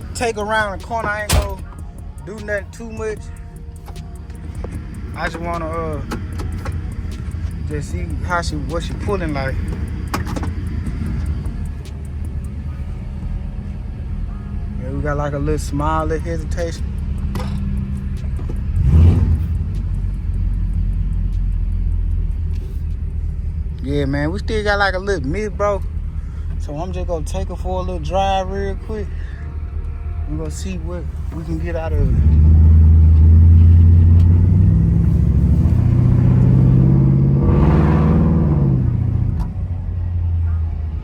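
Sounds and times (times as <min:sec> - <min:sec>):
car engine pulling away: 0:00.0 - 0:29.0, 0:30.9 - 0:40.5
car engine running with a miss: 0:03.8 - 0:12.8.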